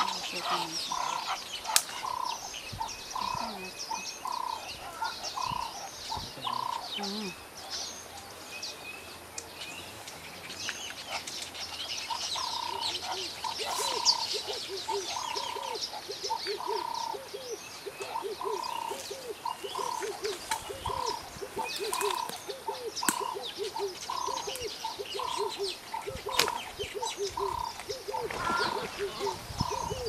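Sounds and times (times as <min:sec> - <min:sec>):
birds chirping: 0:00.0 - 0:30.0
lower repeating bird call: 0:12.1 - 0:30.0.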